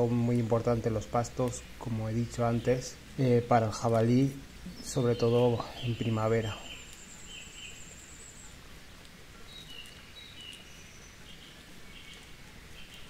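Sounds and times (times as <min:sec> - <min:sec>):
steady background hiss: 0:00.0 - 0:13.0
birds whistling: 0:04.6 - 0:08.6.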